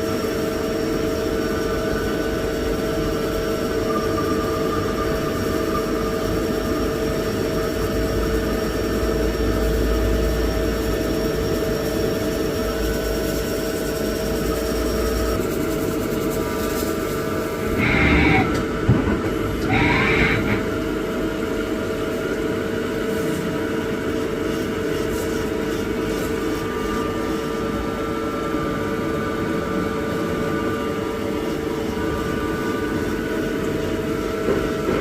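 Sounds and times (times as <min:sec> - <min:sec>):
machine tool humming: 0:16.4 - 0:21.8
harsh machine bursts: 0:17.5 - 0:20.8.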